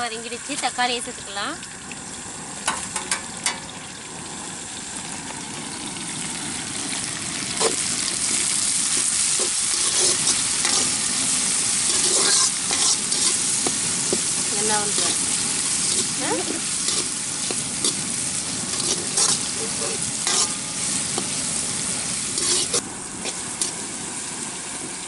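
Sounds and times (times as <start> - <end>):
tomatoes sizzling in oil: 0.0 - 25.0
ladle stirring and scraping pan: 7.6 - 23.8.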